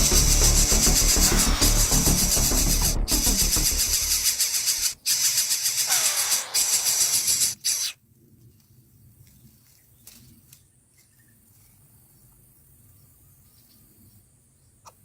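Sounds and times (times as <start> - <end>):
insects buzzing: 0.0 - 8.0
faint insect chirps: 3.1 - 8.0.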